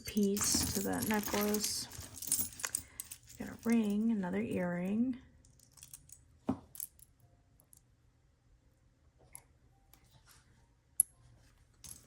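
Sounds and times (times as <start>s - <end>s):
jewelry clicking and rustling: 0.0s - 4.7s, 5.4s - 7.8s, 11.7s - 12.0s.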